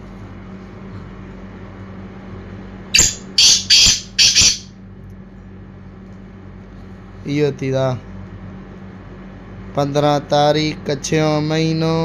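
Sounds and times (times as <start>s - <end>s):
low hum: 0.0s - 4.8s
bird harsh rasping calls: 3.0s - 4.7s.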